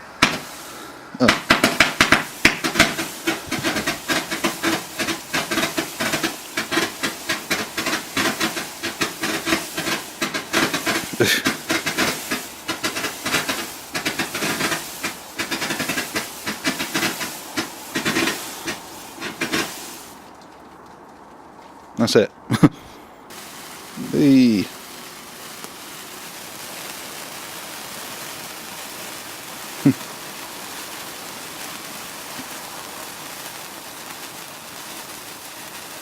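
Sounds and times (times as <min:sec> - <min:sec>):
firework barrage shots: 0:00.0 - 0:20.3, 0:23.3 - 0:36.0
firework hissing and crackle: 0:00.0 - 0:20.9, 0:23.3 - 0:36.0.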